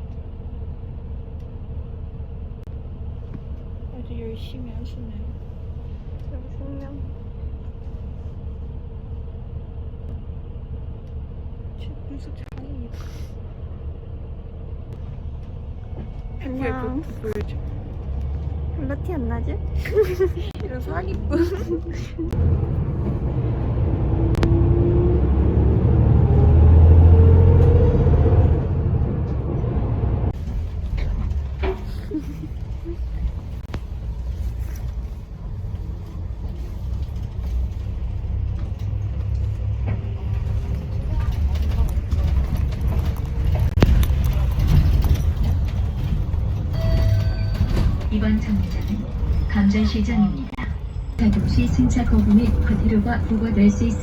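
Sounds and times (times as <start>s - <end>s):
bus engine rumble and whine: 0.0s - 54.0s.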